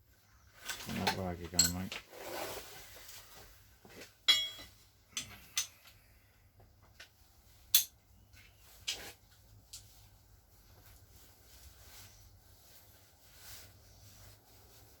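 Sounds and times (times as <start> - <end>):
metallic clinks of tools: 4.3 - 5.8.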